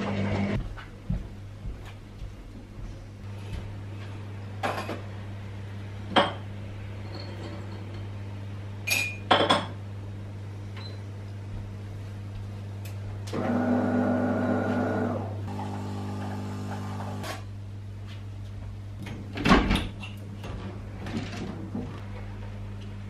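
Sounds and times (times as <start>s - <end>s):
appliance buzzing hum: 0.0s - 0.7s, 3.2s - 23.0s
glass clinking: 8.9s - 9.7s.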